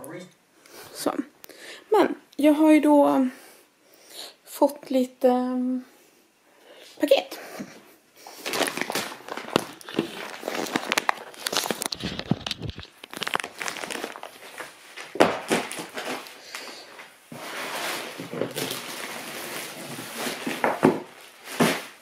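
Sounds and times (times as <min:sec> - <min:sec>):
plastic bags crinkling: 0:08.2 - 0:22.0
knocks from handling parcels: 0:20.5 - 0:21.9.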